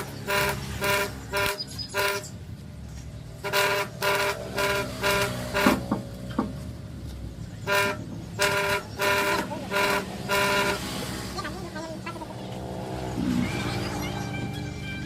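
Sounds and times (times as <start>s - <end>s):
horn tooting: 0.0s - 2.5s, 3.4s - 6.2s, 7.6s - 15.0s.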